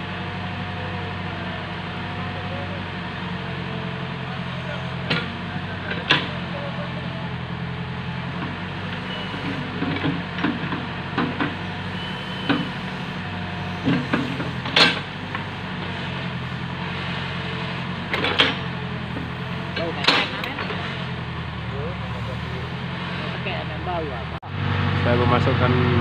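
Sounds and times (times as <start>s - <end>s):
truck engine running: 0.0s - 26.0s
sharp knocks and clanks: 9.4s - 11.6s, 12.4s - 12.8s, 13.8s - 15.5s, 18.1s - 20.9s.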